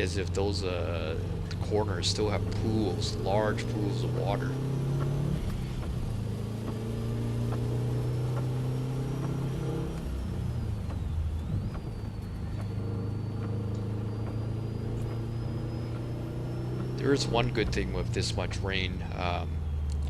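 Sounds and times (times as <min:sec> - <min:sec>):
car engine from inside cabin: 0:00.0 - 0:20.0.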